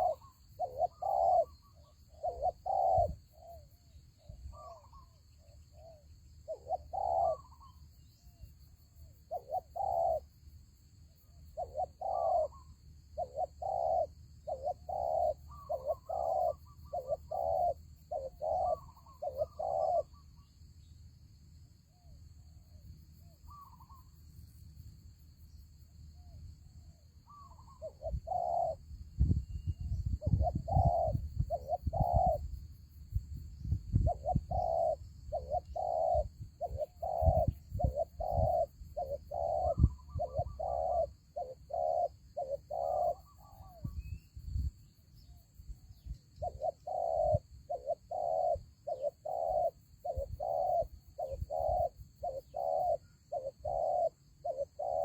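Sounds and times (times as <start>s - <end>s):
doves cooing: 0.0s - 3.7s, 5.9s - 7.8s, 9.3s - 10.3s, 11.6s - 20.2s, 27.3s - 28.8s, 30.2s - 32.4s, 34.0s - 44.0s, 46.4s - 55.0s.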